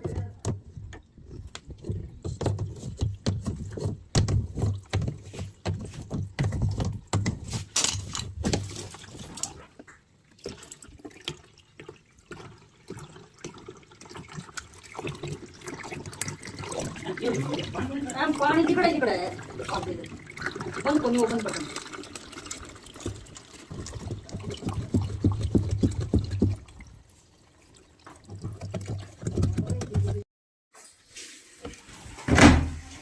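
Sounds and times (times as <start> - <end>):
handling knocks and clicks: 0.0 - 9.5
water splashing in washing machine: 0.0 - 30.2, 30.8 - 33.0.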